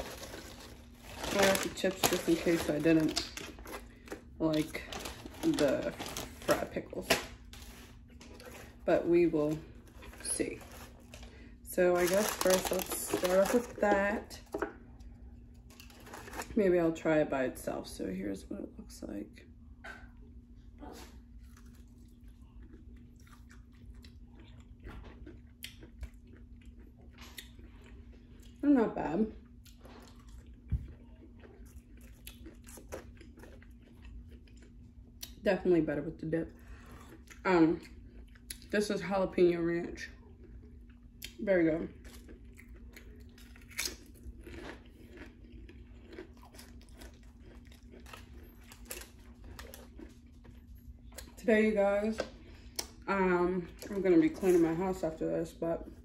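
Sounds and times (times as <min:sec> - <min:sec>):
person chewing crispy food: 0:00.0 - 0:06.6, 0:07.3 - 0:08.9, 0:09.5 - 0:16.6, 0:21.0 - 0:28.6, 0:29.4 - 0:35.4, 0:36.6 - 0:38.7, 0:40.2 - 0:51.4
potato chip crunching: 0:00.0 - 0:14.6, 0:15.6 - 0:16.6, 0:29.8 - 0:35.4, 0:41.2 - 0:51.4.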